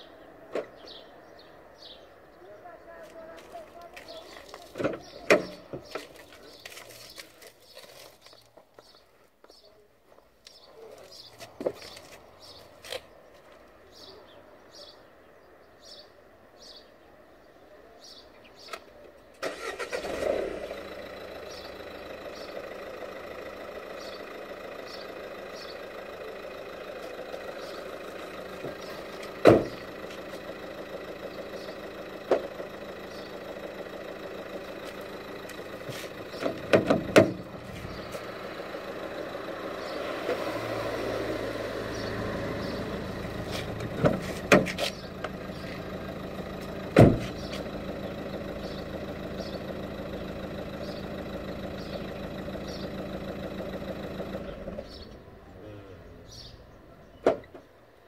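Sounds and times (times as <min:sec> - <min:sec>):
car engine cranking and idling: 0:00.0 - 0:09.0, 0:18.6 - 0:58.0
loud thump: 0:29.4 - 0:29.8, 0:36.4 - 0:37.5, 0:47.0 - 0:47.4.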